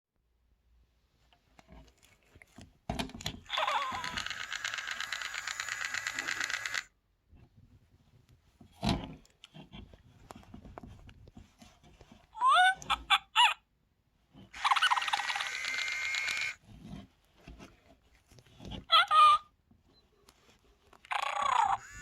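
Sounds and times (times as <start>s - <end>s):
toy buzzy chattering trill: 3.5s - 6.9s, 14.6s - 16.6s, 21.1s - 22.0s.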